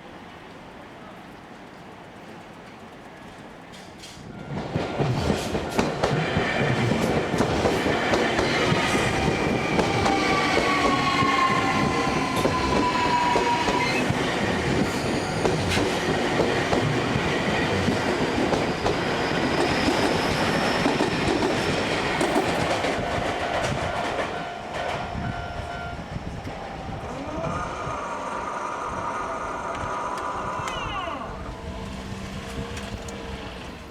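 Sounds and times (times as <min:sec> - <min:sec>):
train wheels clattering over rail joints: 0:03.7 - 0:25.2
train whine falling in pitch: 0:07.9 - 0:16.0.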